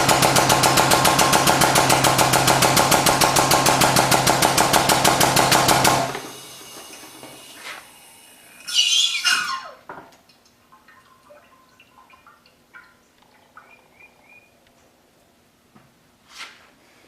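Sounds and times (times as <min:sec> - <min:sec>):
short scrape: 0:16.2 - 0:16.9.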